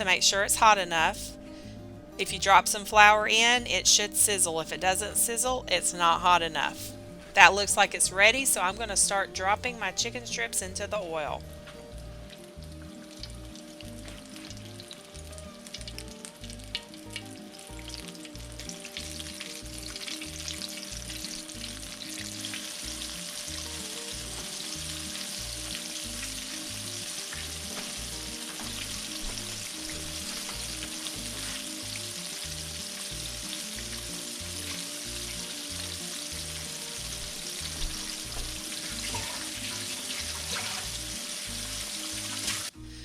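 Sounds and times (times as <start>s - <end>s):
background music: 0.0s - 43.0s
chicken frying in hot oil: 12.2s - 43.0s.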